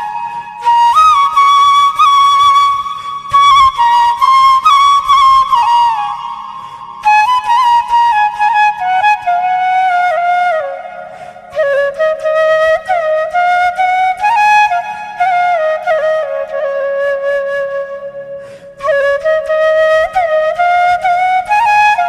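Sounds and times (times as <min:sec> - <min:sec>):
flute melody: 0:00.0 - 0:22.0
soft accompaniment: 0:00.0 - 0:22.0.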